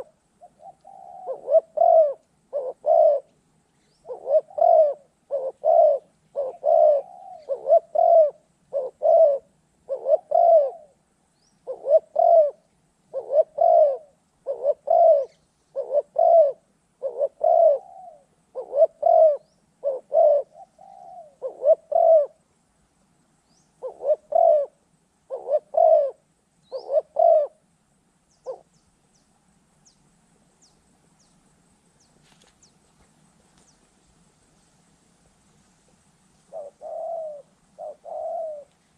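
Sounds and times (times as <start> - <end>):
dove cooing: 0.0 - 11.0, 11.6 - 22.4, 23.8 - 27.6, 28.4 - 28.8, 36.4 - 38.9.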